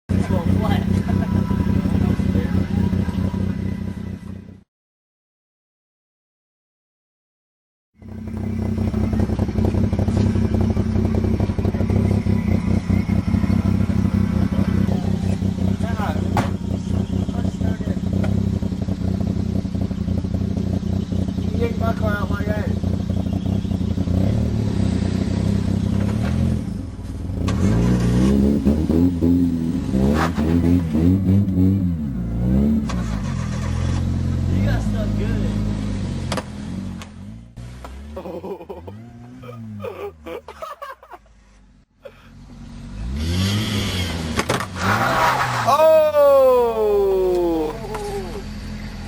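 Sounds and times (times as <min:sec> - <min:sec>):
vehicle engine running roughly: 0:00.1 - 0:04.6, 0:08.0 - 0:28.0, 0:47.6 - 0:49.0.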